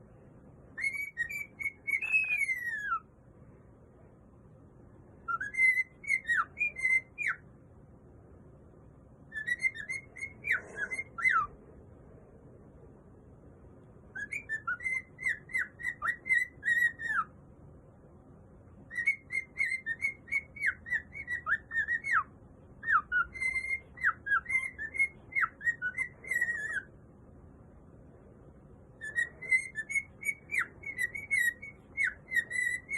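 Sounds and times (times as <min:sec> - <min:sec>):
cockatiel whistling: 0:00.8 - 0:03.1, 0:05.2 - 0:07.4, 0:09.3 - 0:11.5, 0:14.1 - 0:17.3, 0:18.9 - 0:26.9, 0:29.0 - 0:32.9.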